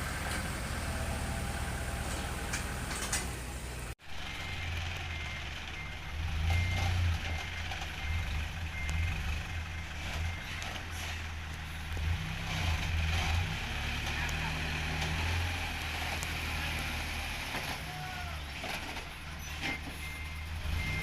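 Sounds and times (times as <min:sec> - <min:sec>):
heavy diesel engine running: 0:00.0 - 0:21.0
reversing alarm beeps: 0:04.2 - 0:10.8, 0:19.7 - 0:21.0.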